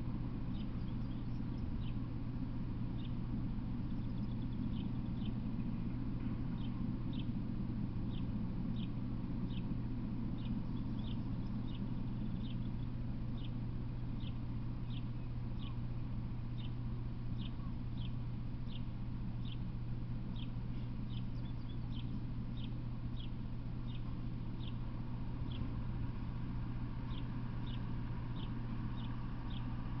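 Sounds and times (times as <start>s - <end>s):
steady low hum: 0.0s - 30.0s
bird chirping: 0.5s - 2.0s, 3.8s - 5.4s, 8.1s - 9.7s, 10.4s - 15.8s, 17.4s - 19.6s, 20.3s - 24.8s, 25.4s - 25.7s, 27.0s - 29.8s.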